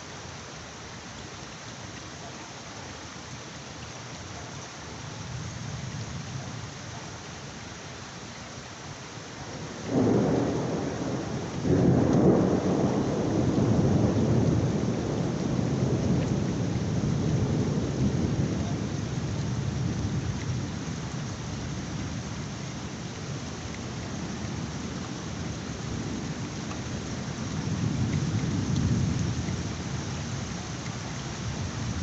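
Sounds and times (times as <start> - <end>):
heavy rain: 0.0 - 32.0
thunder rumbling: 9.5 - 22.1.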